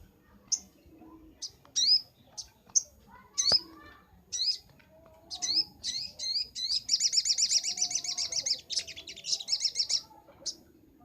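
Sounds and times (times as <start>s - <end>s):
bird high chirps: 0.4s - 10.7s.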